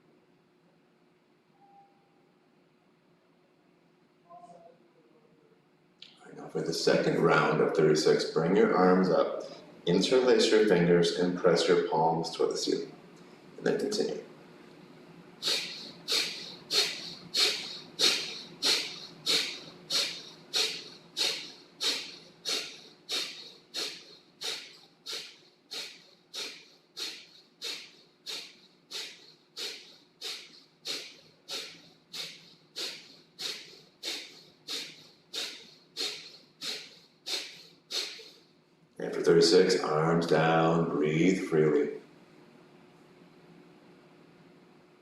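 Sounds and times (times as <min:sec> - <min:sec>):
sharp nasal exhales: 0:15.4 - 0:38.5.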